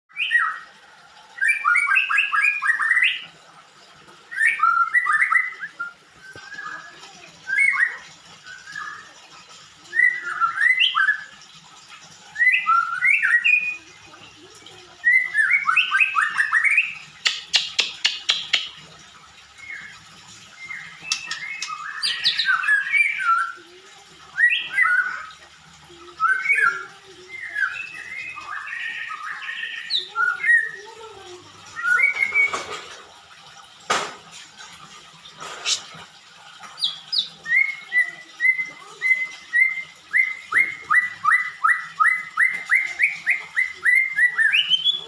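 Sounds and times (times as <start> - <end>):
songbird singing: 4.3 - 9.2, 9.8 - 11.4, 12.3 - 18.8, 19.4 - 33.0, 36.6 - 45.0.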